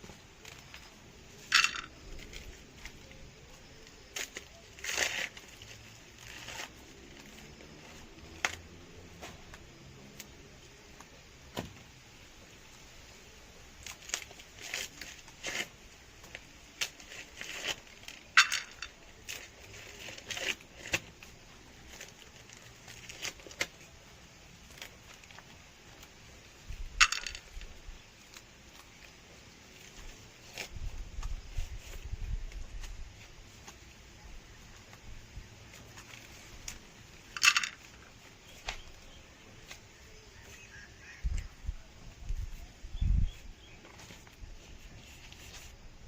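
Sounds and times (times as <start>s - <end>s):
corn ears snapping: 0.0s - 10.4s, 13.7s - 33.9s, 35.7s - 41.5s
dry maize leaves rustling: 0.0s - 46.0s.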